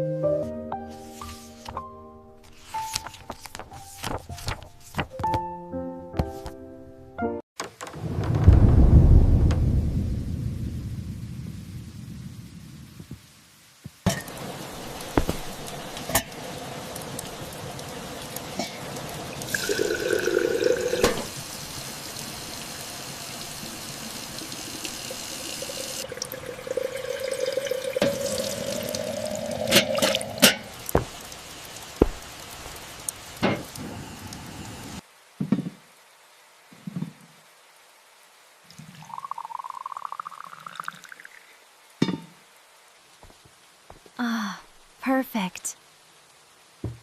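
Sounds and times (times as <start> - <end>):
water pouring into vessel: 18.6 - 21.4, 24.3 - 31.4.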